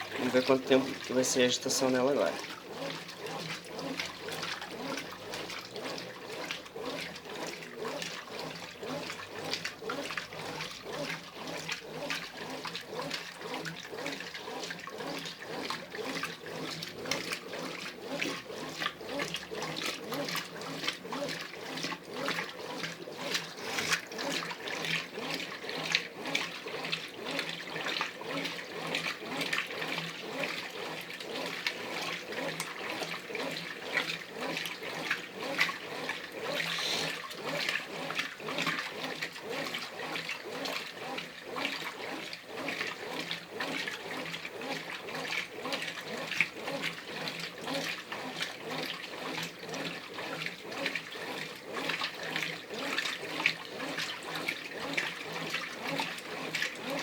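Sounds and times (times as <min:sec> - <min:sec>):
washing machine water sloshing: 0:00.0 - 0:57.0.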